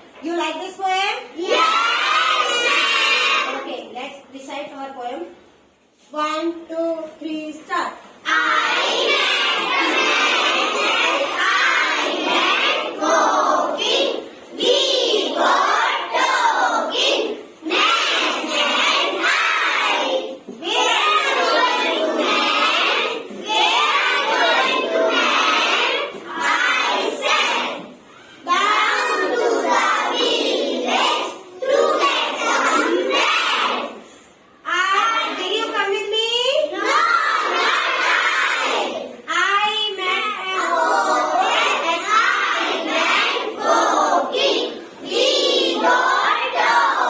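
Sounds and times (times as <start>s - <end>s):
children reciting in unison: 1.3s - 3.7s, 8.0s - 35.8s, 36.6s - 39.3s, 40.1s - 47.0s.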